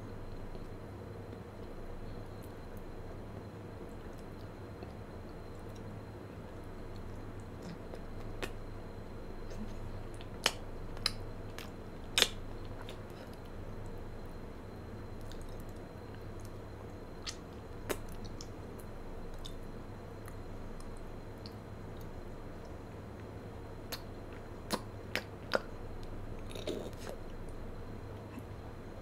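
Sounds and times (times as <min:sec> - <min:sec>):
steady low hum: 0:00.0 - 0:29.0
soft squishy chewing: 0:03.8 - 0:08.7, 0:09.4 - 0:14.4, 0:15.1 - 0:28.6
wet mouth clicks and smacks: 0:10.2 - 0:13.0, 0:17.2 - 0:18.5, 0:24.7 - 0:27.2.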